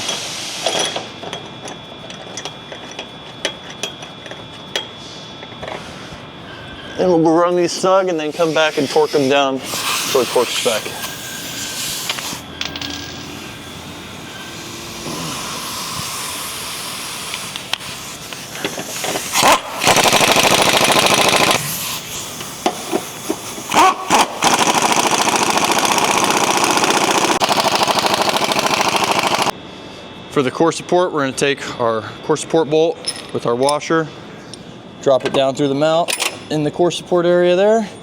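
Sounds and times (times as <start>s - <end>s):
impact wrench hammering bolts: 17.3s - 21.6s, 22.6s - 29.5s.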